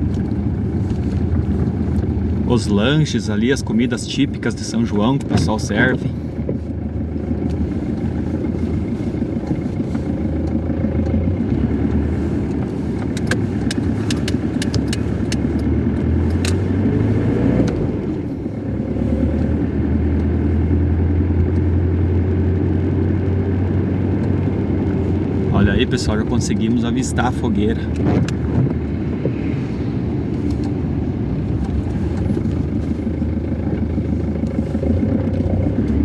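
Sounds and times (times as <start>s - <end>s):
car engine and road noise: 0.0s - 36.0s
sharp clicks: 16.3s - 16.7s.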